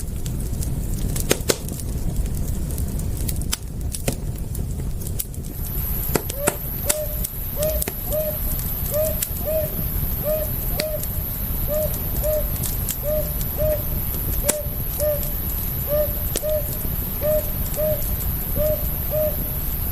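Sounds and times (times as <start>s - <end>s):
campfire crackling and popping: 0.0s - 19.9s
low rumble: 0.0s - 19.9s
short hooting call: 6.3s - 19.6s.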